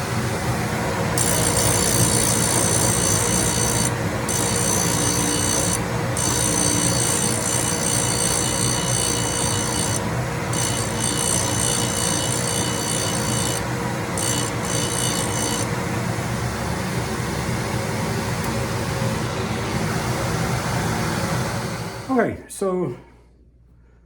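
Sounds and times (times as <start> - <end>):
grinding machine running: 0.0 - 22.3
grinding wheel on steel: 1.2 - 15.8.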